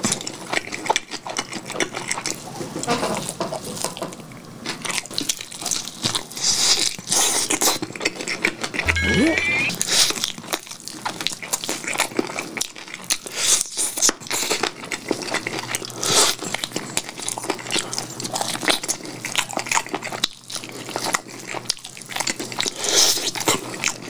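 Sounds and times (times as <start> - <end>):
wet chewing of chicken: 13.2 - 24.0.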